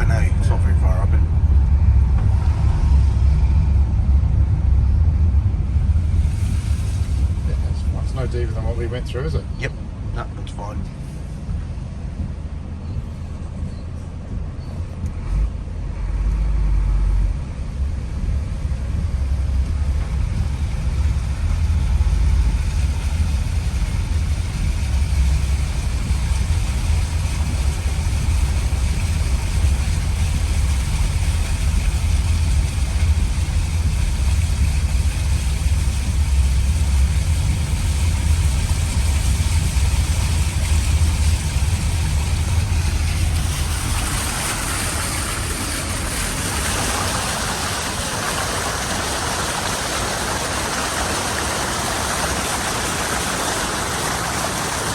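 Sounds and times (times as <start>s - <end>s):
vehicle engine rumbling: 0.0s - 54.9s
hiss: 41.4s - 54.9s.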